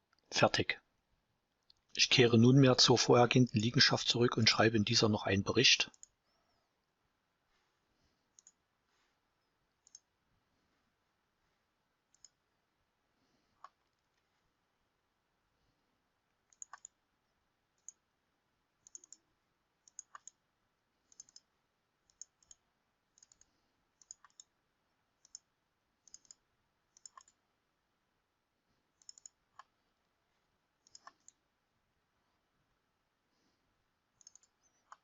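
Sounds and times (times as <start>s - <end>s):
mouse and keyboard clicks: 8.3s - 8.6s, 9.8s - 10.1s, 12.1s - 12.4s, 16.4s - 17.0s, 17.8s - 18.0s, 18.8s - 20.4s, 21.1s - 24.5s, 25.2s - 27.4s, 29.0s - 29.7s, 30.8s - 31.4s, 34.2s - 35.0s.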